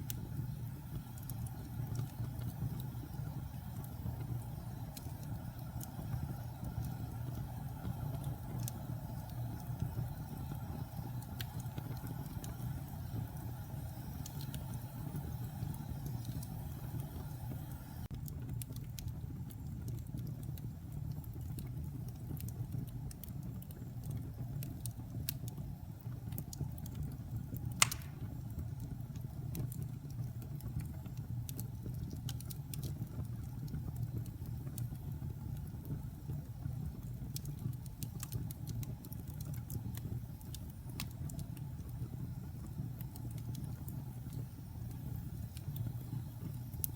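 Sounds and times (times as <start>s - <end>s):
flames hissing: 0.0s - 18.1s, 27.6s - 28.4s, 37.5s - 46.9s
burning logs crackling: 0.0s - 46.9s
fire flames rumbling: 0.0s - 46.9s
log fire popping: 0.0s - 46.9s.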